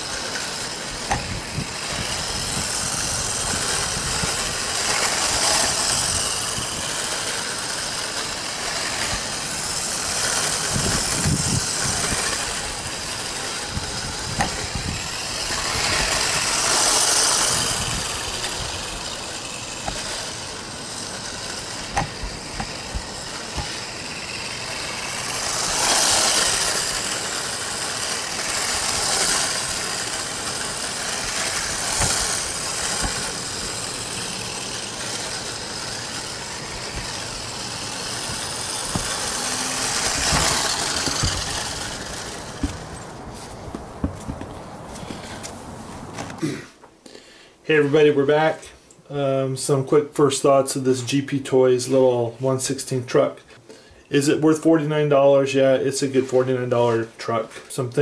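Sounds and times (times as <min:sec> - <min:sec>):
toy truck electric motor: 0:00.0 - 0:45.6.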